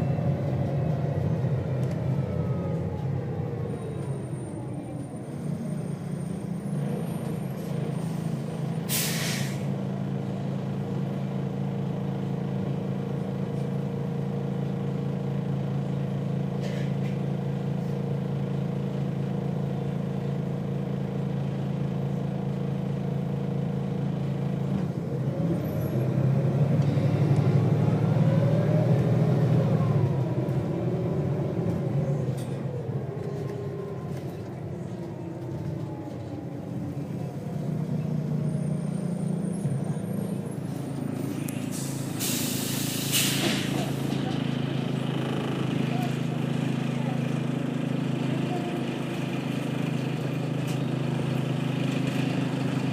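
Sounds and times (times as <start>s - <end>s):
bus diesel engine idling and revving: 0.0s - 52.9s
air release hiss: 8.9s - 9.6s, 41.7s - 43.8s.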